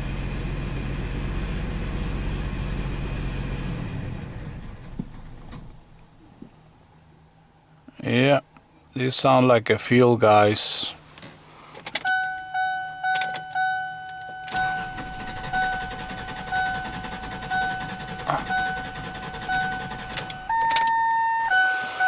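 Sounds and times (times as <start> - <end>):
car engine cranking: 11.7 - 22.0
car warning chime dinging: 12.0 - 22.0.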